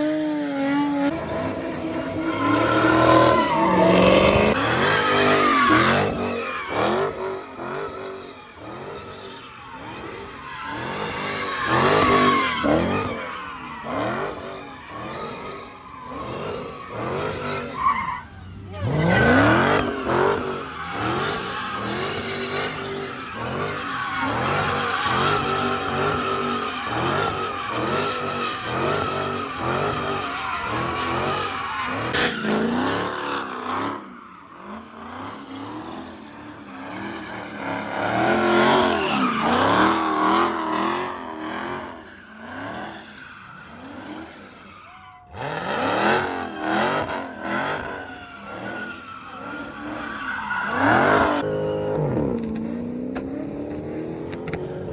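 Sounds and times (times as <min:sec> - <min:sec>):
tyres squealing: 0:01.8 - 0:34.7
car engine revving hard: 0:09.8 - 0:43.0, 0:45.4 - 0:50.1.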